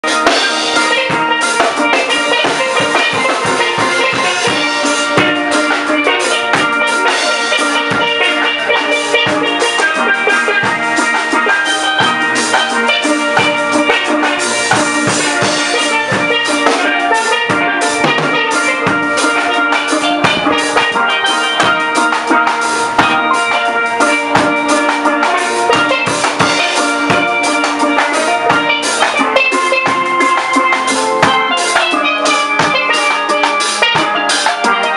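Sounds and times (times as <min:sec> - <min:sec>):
drum kit: 0:00.0 - 0:34.9
steel drum music: 0:00.0 - 0:34.9.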